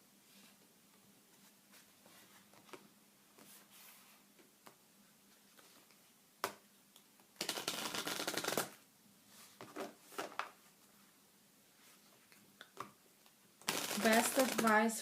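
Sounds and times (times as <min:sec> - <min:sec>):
cards being shuffled: 0:07.4 - 0:08.8, 0:13.6 - 0:14.8.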